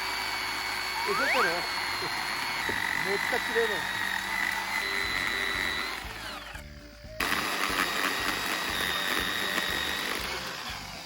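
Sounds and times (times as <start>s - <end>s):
frogs calling: 1.0s - 7.0s.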